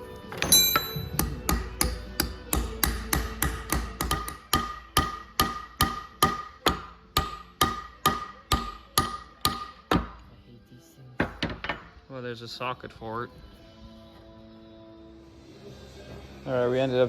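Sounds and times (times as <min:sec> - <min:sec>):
hammer striking steel: 0:00.4 - 0:10.2.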